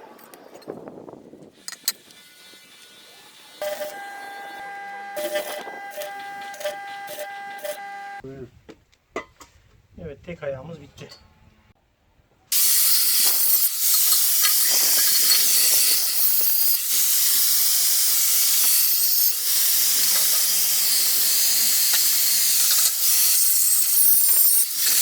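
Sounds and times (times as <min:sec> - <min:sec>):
arc welding hiss: 0:12.5 - 0:25.0.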